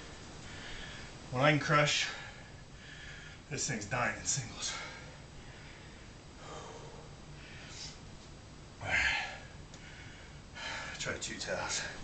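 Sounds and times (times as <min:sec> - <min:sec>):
man breathing heavily: 0:00.4 - 0:01.3, 0:02.0 - 0:03.5, 0:04.6 - 0:08.1, 0:08.8 - 0:11.0
man speaking: 0:03.5 - 0:04.9, 0:11.0 - 0:12.0.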